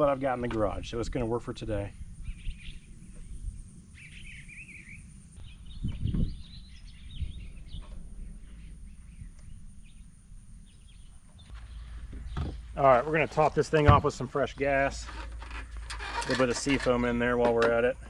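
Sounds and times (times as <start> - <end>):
birds chirping: 0.0 - 16.1.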